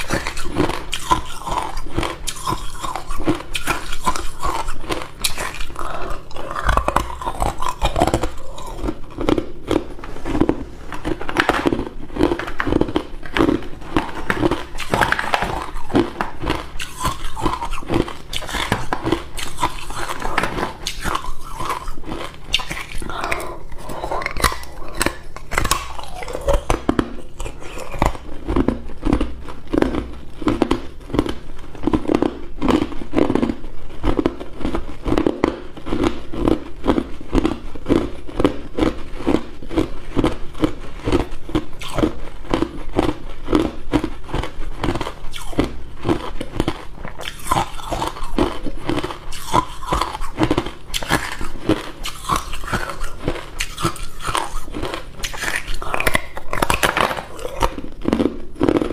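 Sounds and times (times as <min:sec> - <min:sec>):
ice cubes crunched and chewed: 0:00.0 - 0:58.9.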